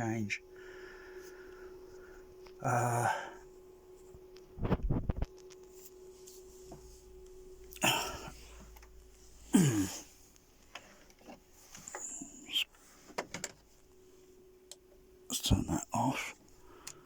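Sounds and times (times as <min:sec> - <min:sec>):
faint steady hum: 0:00.0 - 0:17.0
person coughing: 0:07.8 - 0:08.4, 0:09.4 - 0:10.2.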